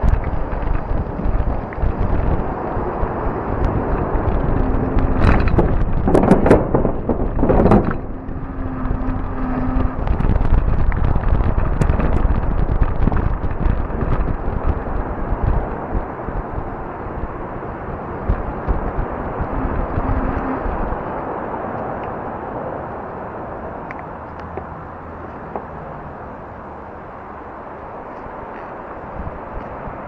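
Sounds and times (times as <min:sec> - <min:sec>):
bike knocks and rattles: 0:00.0 - 0:17.3
tyres rumbling: 0:00.0 - 0:29.6
faint steady hum: 0:00.0 - 0:29.8
wind buffeting microphone: 0:00.0 - 0:30.0.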